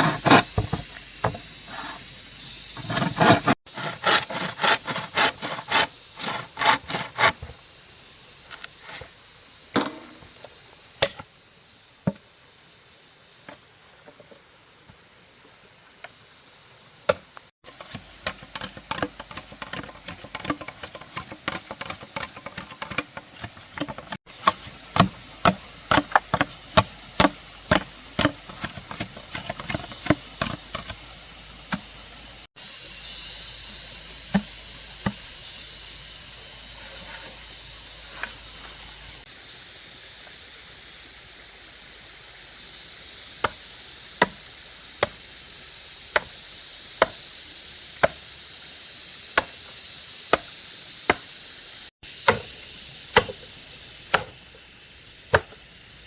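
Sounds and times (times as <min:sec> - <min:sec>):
food sizzling in a pan: 0:00.0 - 0:03.8, 0:24.2 - 0:56.0.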